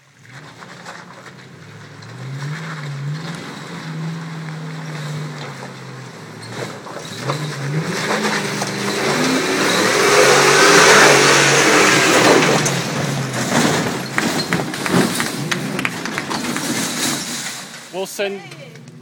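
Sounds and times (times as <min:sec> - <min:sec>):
vehicle engine revving hard: 0:02.1 - 0:17.3
knocks and clatter: 0:11.2 - 0:19.0.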